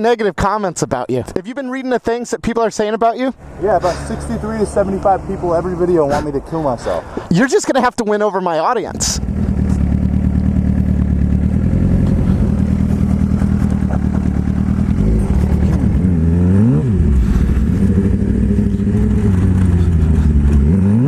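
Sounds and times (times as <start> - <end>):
motorcycle engine running: 9.0 - 21.0.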